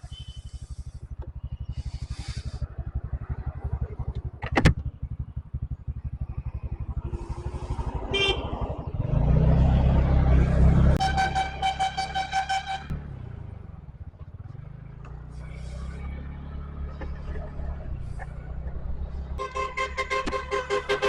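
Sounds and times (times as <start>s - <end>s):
motorcycle engine pulsing: 0.0s - 21.0s
high horn beep: 10.7s - 13.0s, 19.4s - 21.0s.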